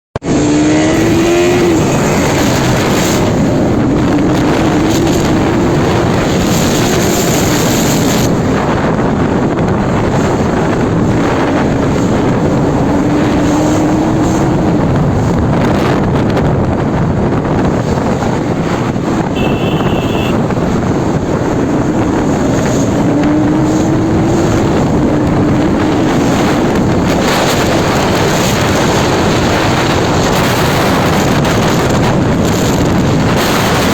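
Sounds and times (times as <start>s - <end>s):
wind noise on microphone: 0.2s - 33.9s
motorcycle engine running: 19.1s - 33.5s.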